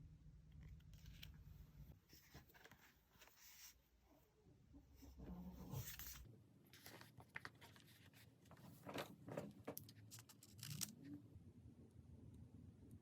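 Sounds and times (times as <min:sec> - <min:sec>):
paper and stickers crinkling: 0:05.8 - 0:11.2.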